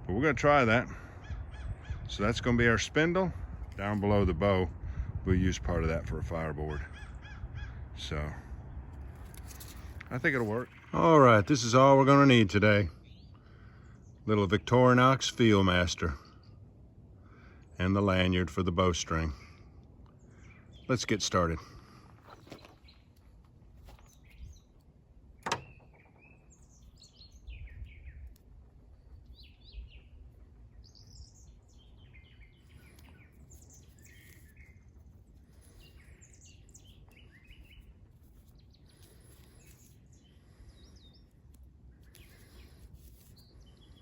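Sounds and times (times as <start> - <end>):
small birds chirping: 6.3 - 44.0.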